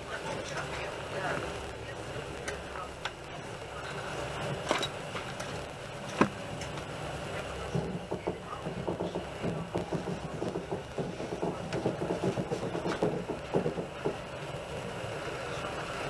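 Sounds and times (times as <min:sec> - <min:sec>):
train rumble inside carriage: 0:00.0 - 0:16.0
rattles and knocks: 0:07.8 - 0:14.3.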